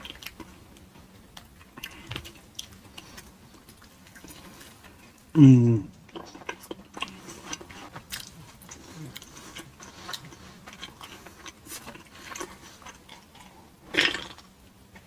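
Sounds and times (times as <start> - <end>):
chewing crunchy food: 0.0 - 5.3, 5.9 - 15.0.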